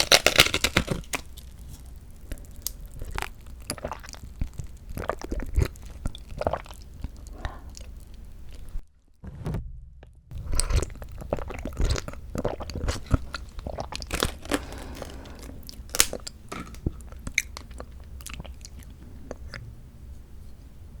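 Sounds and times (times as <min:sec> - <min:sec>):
wet squishy chewing: 0:00.9 - 0:08.8, 0:10.4 - 0:19.6.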